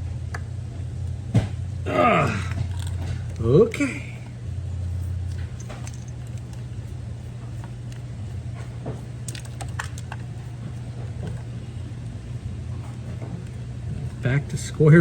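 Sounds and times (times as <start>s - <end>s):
deeper hum: 0.0s - 9.3s
refrigerator compressor hum: 0.0s - 15.0s.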